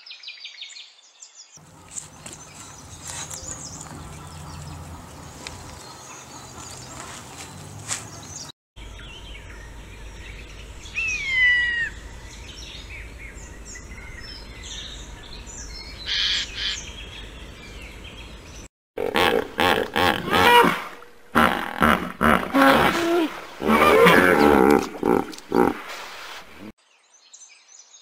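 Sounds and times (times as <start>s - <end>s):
hippopotamuses calling: 1.6s - 8.3s, 19.0s - 26.7s.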